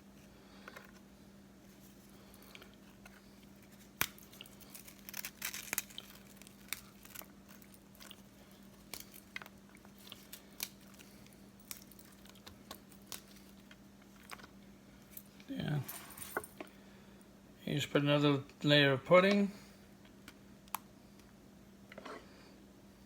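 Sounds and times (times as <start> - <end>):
crackers snapping: 2.2 - 14.6.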